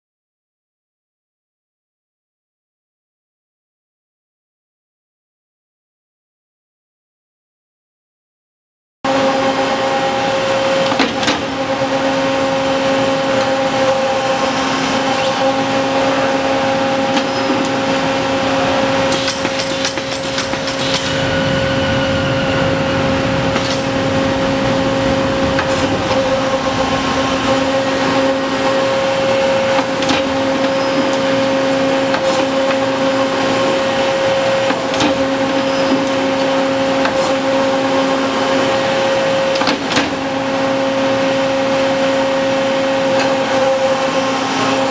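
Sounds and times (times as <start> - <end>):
tube bender machine humming: 9.1 - 44.9
brief rush of noise: 20.8 - 28.9.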